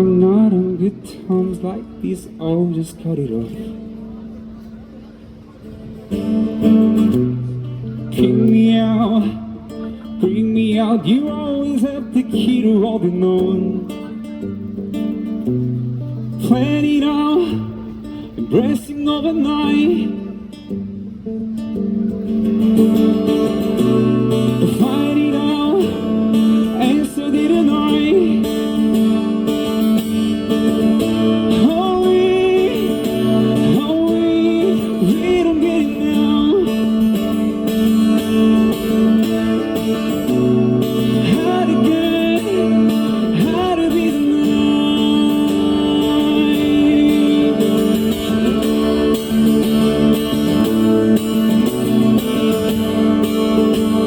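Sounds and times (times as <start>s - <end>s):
guitar accompaniment: 0.0s - 54.0s.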